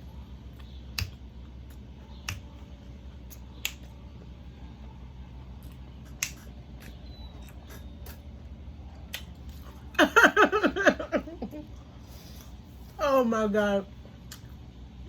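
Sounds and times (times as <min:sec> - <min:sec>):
low room hum: 0:00.0 - 0:15.0
crunching while chewing: 0:00.4 - 0:10.0.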